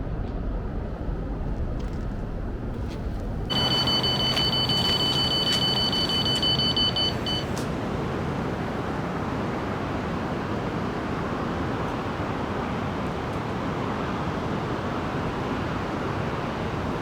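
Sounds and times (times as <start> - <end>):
bite alarm beeping: 3.5 - 7.6.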